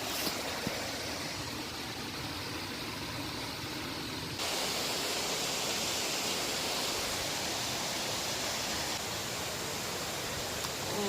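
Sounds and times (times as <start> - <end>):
river running fast: 0.0 - 11.0
waterfall rushing: 4.4 - 11.0.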